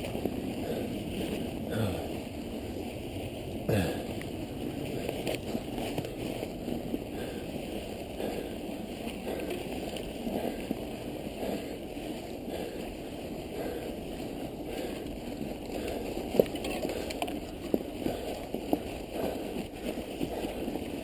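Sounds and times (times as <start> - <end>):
bike tyres churning snow: 0.0 - 21.0.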